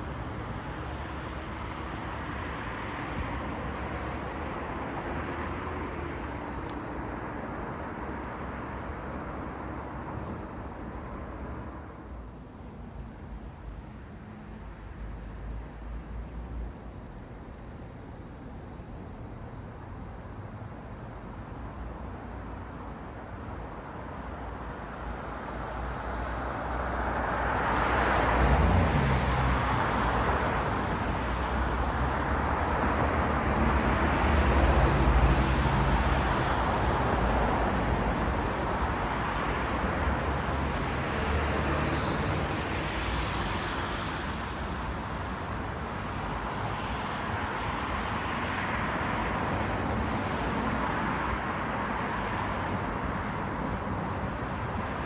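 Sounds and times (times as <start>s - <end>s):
cars passing: 25.6s - 55.0s.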